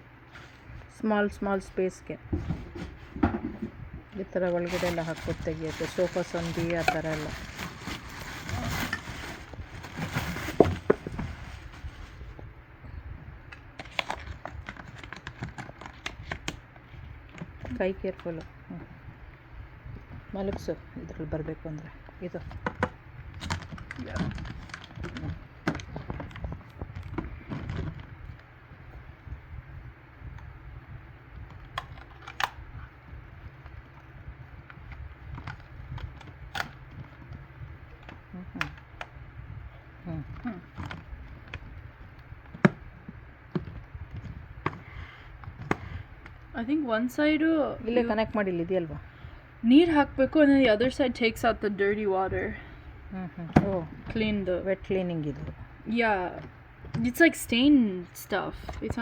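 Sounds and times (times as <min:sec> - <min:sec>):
low steady hum: 0:00.0 - 0:59.0
plastic packaging rustling: 0:04.3 - 0:12.4, 0:13.5 - 0:16.7, 0:22.4 - 0:28.4.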